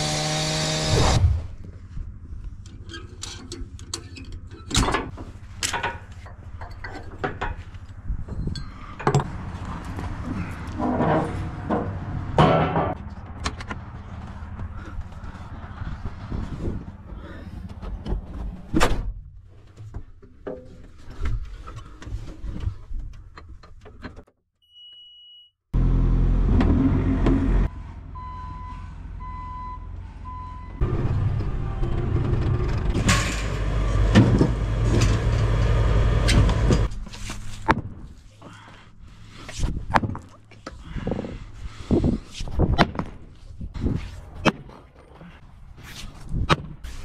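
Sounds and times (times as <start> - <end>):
diesel engine running: 25.8 - 37.0
warning alarm beeps: 28.2 - 30.8.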